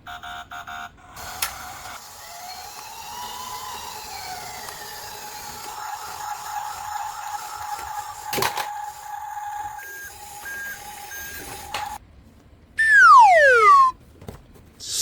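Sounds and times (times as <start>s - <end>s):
steady high electronic tone: 12.8s - 13.9s.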